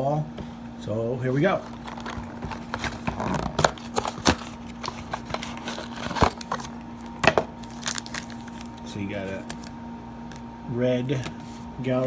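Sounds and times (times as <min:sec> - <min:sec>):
paper and cardboard rustling: 0:01.3 - 0:09.7, 0:11.2 - 0:12.0
cardboard box being opened: 0:01.6 - 0:09.7.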